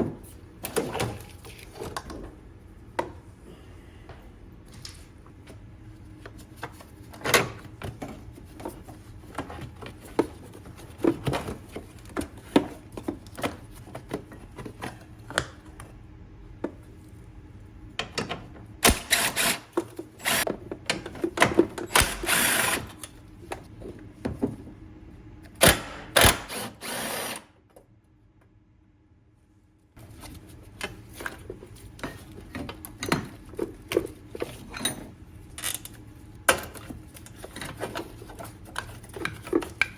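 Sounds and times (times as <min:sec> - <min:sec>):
power tool bursts: 0:18.9 - 0:19.6, 0:21.9 - 0:22.9, 0:25.6 - 0:27.5.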